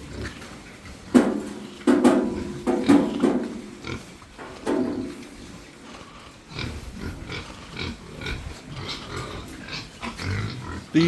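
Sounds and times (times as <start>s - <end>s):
pigs grunting: 0.0s - 11.0s.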